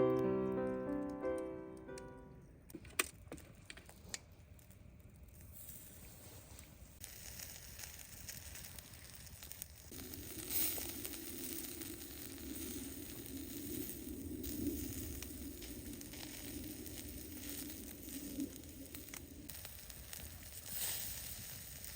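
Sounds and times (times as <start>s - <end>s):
faint crackles: 0.0s - 21.9s
food sizzling on a grill: 5.4s - 21.9s.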